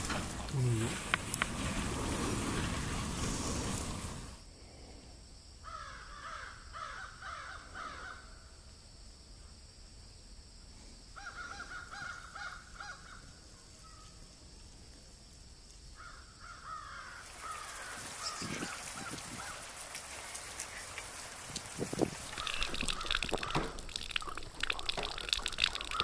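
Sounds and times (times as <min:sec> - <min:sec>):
bird harsh calls: 0:16.6 - 0:26.0.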